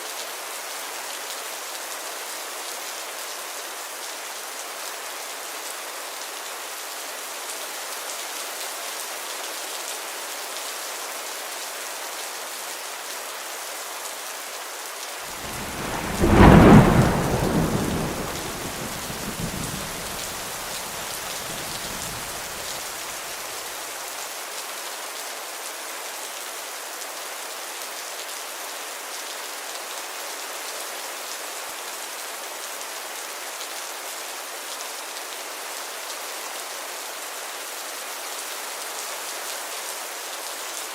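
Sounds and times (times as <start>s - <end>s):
heavy rain hissing: 15.3s - 23.7s
thunderclap: 15.4s - 22.7s.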